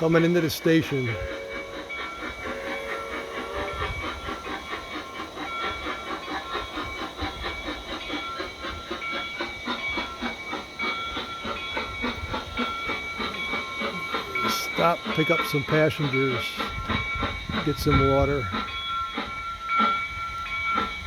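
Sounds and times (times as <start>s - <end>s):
train whistle toot: 0.0s - 5.1s
model steam train chuffing: 0.0s - 21.0s.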